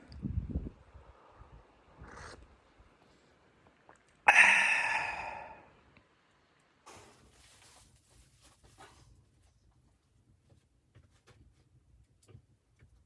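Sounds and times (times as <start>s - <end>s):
loud breathy exhale: 4.3s - 5.7s
soft rustling: 6.9s - 13.0s.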